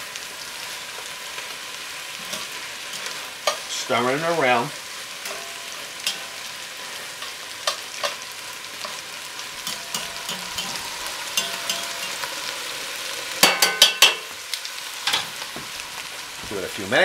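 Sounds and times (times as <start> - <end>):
greens sizzling in a pot: 0.0 - 17.0
metal tongs clicking against pot: 7.2 - 8.2, 9.6 - 12.3.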